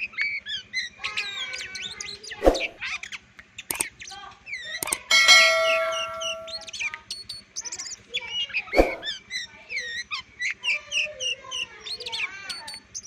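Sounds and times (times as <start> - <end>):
sharp knock: 5.1 - 6.7.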